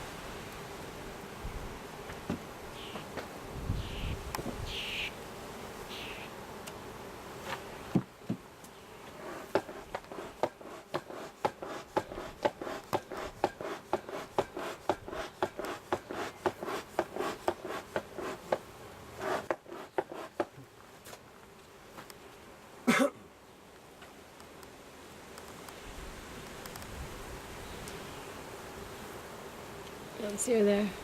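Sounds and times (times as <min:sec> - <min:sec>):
bees buzzing: 0:00.0 - 0:31.0
scraping strokes: 0:09.1 - 0:18.5, 0:19.2 - 0:20.5.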